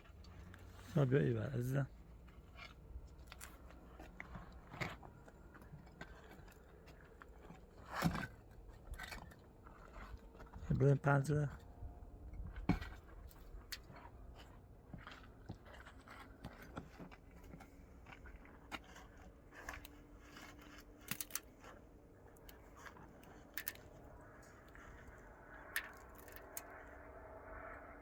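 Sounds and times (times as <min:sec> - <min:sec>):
objects being handled: 0:12.5 - 0:26.9.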